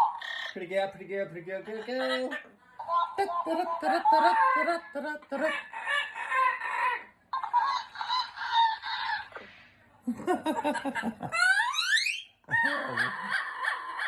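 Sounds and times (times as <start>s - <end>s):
parrot chattering and squawking: 0.0s - 0.7s, 4.4s - 9.6s, 11.3s - 14.0s
parrot whistle-like call: 11.4s - 12.3s.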